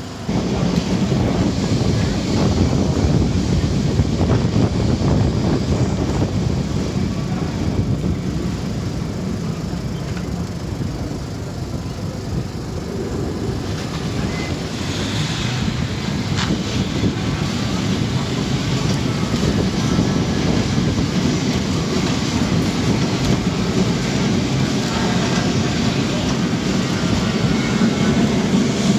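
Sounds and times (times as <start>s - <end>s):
electric tram rumbling on rails: 0.0s - 28.9s.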